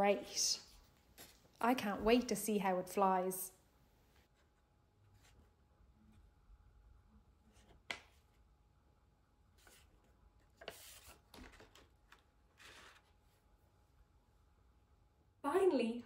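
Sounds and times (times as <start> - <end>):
paper rustling: 9.6 - 13.4.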